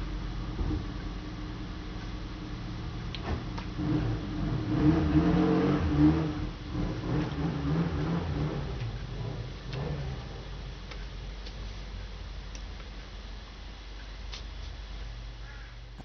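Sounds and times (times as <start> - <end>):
engine revving: 3.1 - 10.8.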